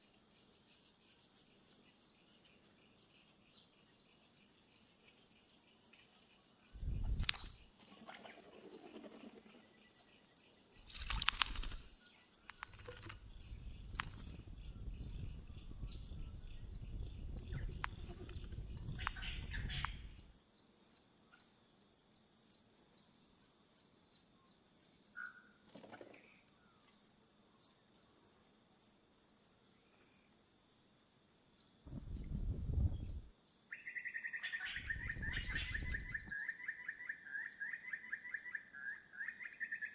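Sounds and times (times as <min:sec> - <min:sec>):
small bird chirping: 0:00.0 - 0:39.9
wind noise on microphone: 0:06.7 - 0:07.7, 0:10.8 - 0:20.4, 0:31.8 - 0:33.3, 0:34.7 - 0:36.4.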